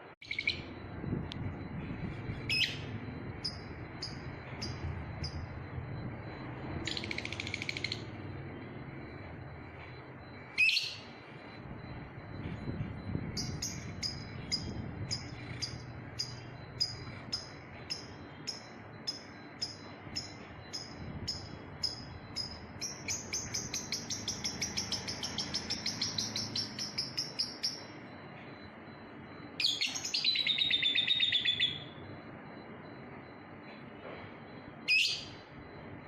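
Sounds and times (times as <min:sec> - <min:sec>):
lovebird chirping: 0:00.2 - 0:00.8, 0:02.0 - 0:05.6, 0:06.7 - 0:09.2, 0:13.3 - 0:27.9, 0:29.6 - 0:32.0.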